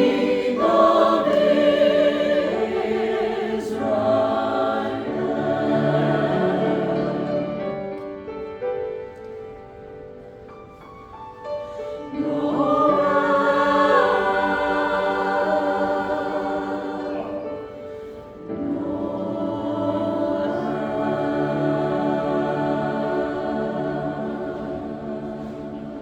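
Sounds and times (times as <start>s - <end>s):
choir singing sustained chords: 0.0s - 8.4s, 11.7s - 26.0s.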